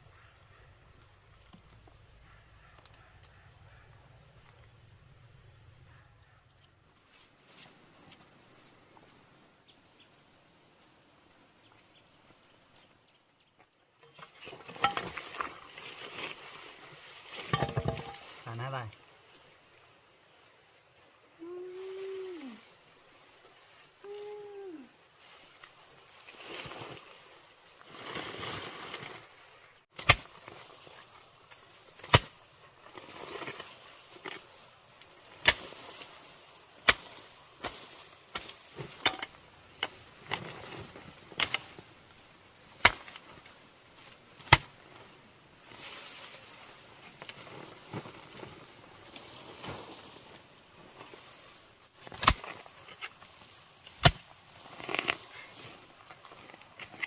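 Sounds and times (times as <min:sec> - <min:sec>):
rustling and handling noise: 0:14.0 - 0:18.5.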